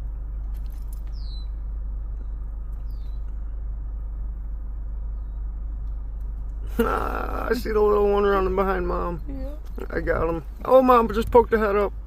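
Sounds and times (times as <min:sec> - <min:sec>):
steady low rumble: 0:00.0 - 0:12.0
small bird chirping: 0:01.0 - 0:03.6.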